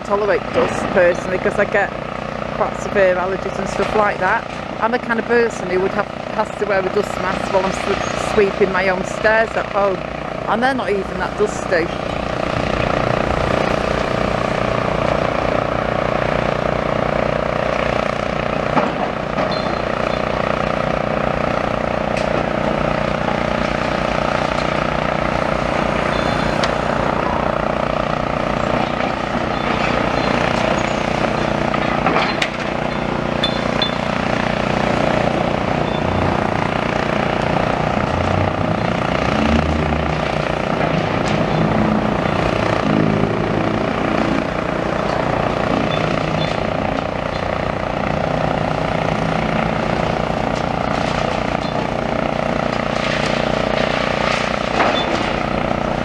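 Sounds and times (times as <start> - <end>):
excavator engine working: 0.0 - 56.0
water mist cannon drone: 0.0 - 56.0.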